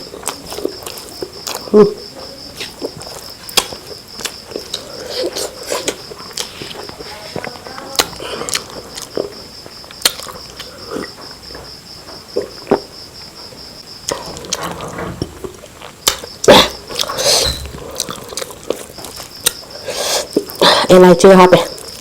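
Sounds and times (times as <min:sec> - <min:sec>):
person chewing and biting food: 0:00.0 - 0:01.8, 0:02.6 - 0:07.1, 0:08.0 - 0:11.2, 0:15.5 - 0:20.6.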